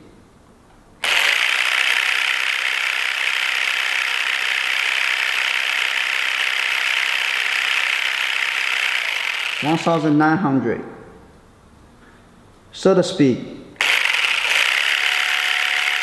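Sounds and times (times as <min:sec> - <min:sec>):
massage gun buzzing: 0:01.0 - 0:10.0, 0:13.8 - 0:16.0.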